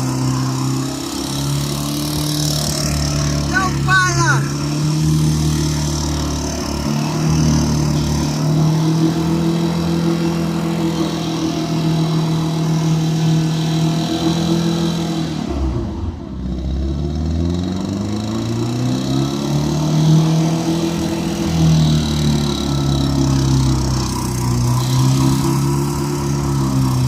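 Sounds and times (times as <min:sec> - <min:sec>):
car engine revving high: 0:00.0 - 0:27.0.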